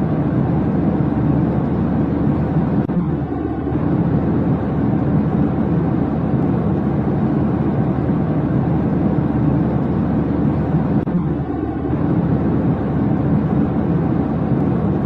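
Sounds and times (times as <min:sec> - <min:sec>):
low rumbling noise: 0:00.0 - 0:15.0.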